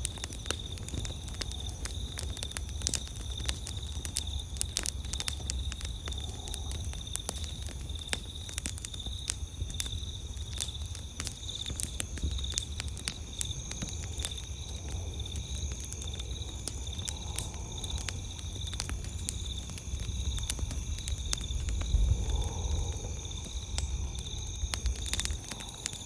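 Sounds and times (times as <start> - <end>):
campfire crackling and popping: 0.0 - 26.0
crickets chirping: 0.0 - 26.0
insect drone: 0.0 - 26.0
low rumble: 20.7 - 25.9.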